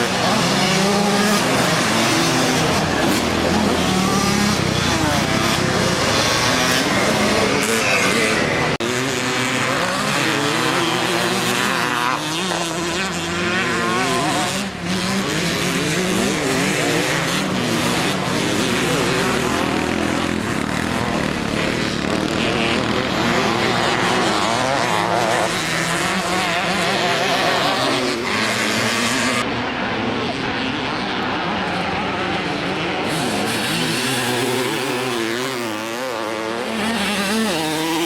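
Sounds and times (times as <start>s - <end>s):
motocross bikes revving: 0.0s - 38.0s.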